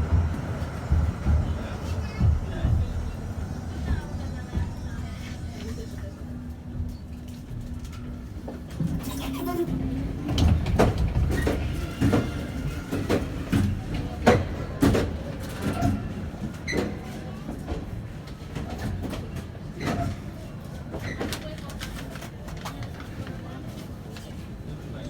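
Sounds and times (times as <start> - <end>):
tram low hum: 0.0 - 21.0
tram knocks and rattles: 0.0 - 23.5.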